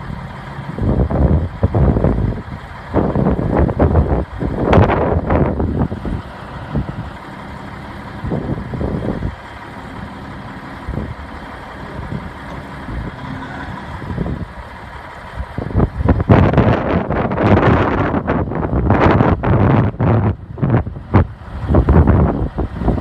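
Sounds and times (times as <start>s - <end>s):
diesel truck engine idling: 0.0s - 23.0s
wind buffeting microphone: 0.0s - 23.0s.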